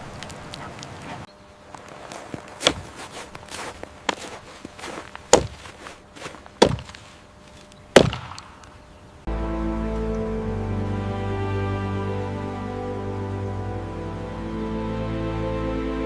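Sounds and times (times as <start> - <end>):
sharp knocks: 5.3 - 5.7, 6.6 - 7.0.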